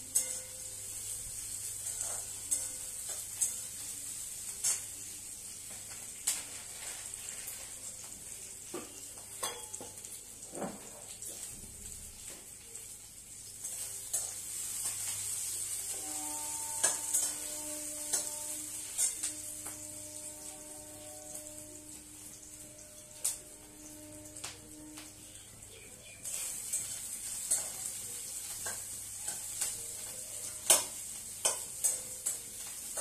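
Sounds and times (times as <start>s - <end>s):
food sizzling in oil: 0.0s - 33.0s
spatula scraping pan: 15.9s - 21.5s.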